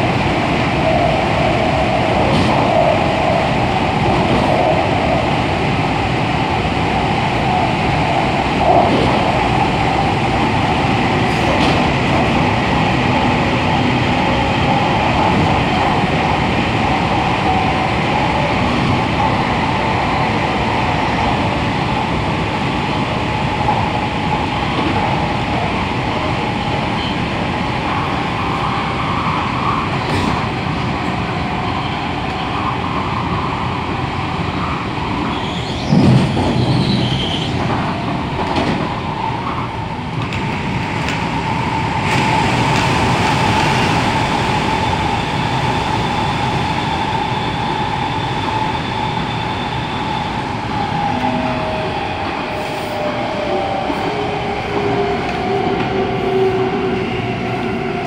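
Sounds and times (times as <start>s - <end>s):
electric train whine: 0.0s - 58.0s
train wheels rumbling on rail: 0.0s - 58.0s
train jolt: 8.6s - 15.6s, 35.2s - 39.4s.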